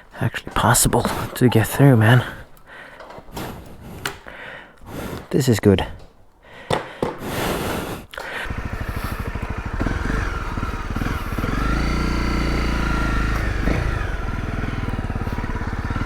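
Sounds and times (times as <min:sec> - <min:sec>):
motorcycle engine running: 0:08.3 - 0:16.0.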